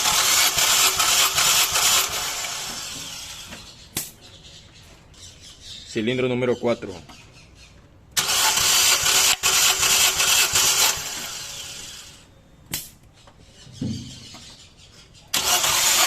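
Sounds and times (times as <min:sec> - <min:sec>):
engine cranking without firing: 0:00.0 - 0:03.8, 0:08.2 - 0:12.3, 0:15.3 - 0:16.0.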